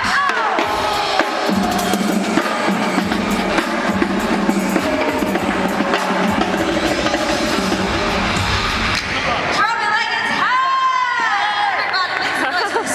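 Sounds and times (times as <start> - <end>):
backing music: 0.0 - 9.8
drums playing steady rhythm: 0.0 - 9.8.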